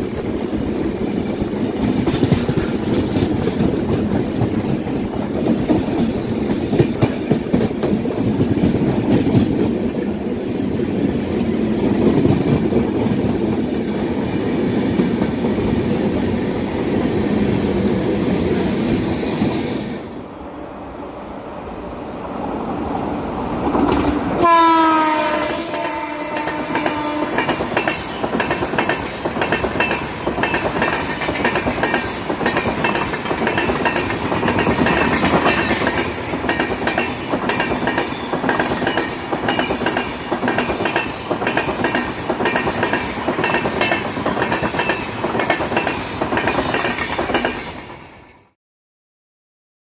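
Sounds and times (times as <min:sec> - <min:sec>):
train wheels clattering over rail joints: 0:01.6 - 0:10.0, 0:23.7 - 0:24.4, 0:25.8 - 0:47.8
locomotive horn: 0:24.4 - 0:27.6.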